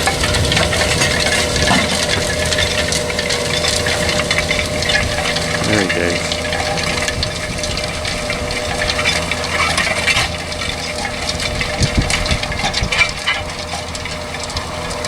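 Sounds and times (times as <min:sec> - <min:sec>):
crunching of clods and stones: 0:00.0 - 0:15.0
tractor engine hum: 0:00.0 - 0:15.0.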